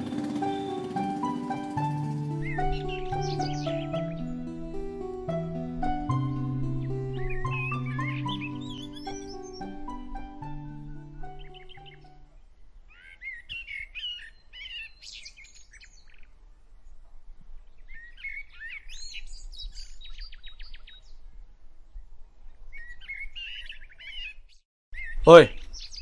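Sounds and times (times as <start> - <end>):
background music: 0.0 - 12.4
songbirds chirping: 0.0 - 26.0.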